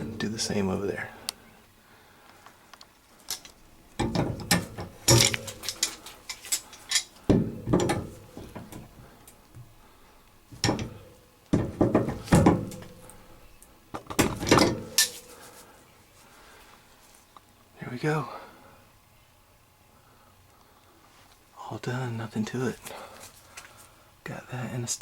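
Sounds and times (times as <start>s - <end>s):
metal shelf hardware clicking: 3.3s - 8.9s, 10.5s - 13.3s, 14.0s - 15.2s.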